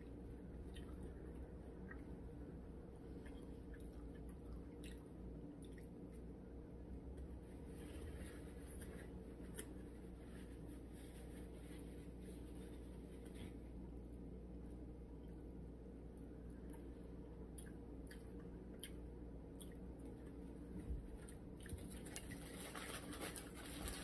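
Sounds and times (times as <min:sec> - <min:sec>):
chewing a sandwich: 0:00.0 - 0:06.4, 0:16.2 - 0:24.0.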